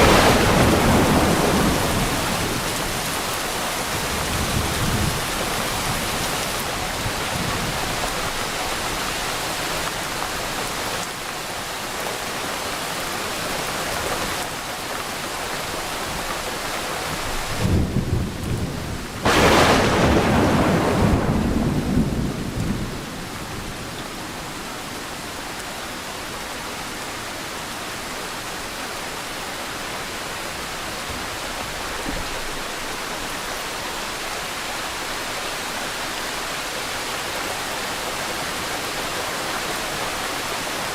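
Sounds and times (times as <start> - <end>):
thunder crack and rumble: 0.0 - 6.3, 17.5 - 24.1
rain hissing: 0.0 - 40.9.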